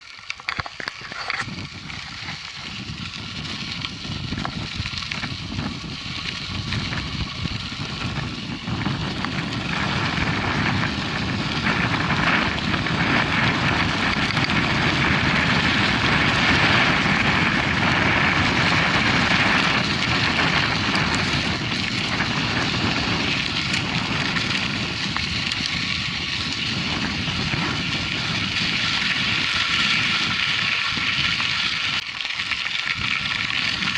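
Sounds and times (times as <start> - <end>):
tyres rolling over dirt: 0.0 - 33.9
wind rushing over microphone: 0.0 - 33.9.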